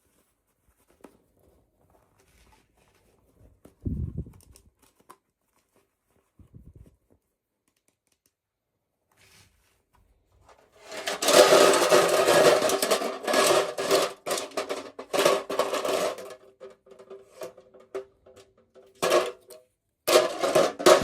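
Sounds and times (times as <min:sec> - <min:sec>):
packaging rustling and scraping: 0:10.6 - 0:18.0.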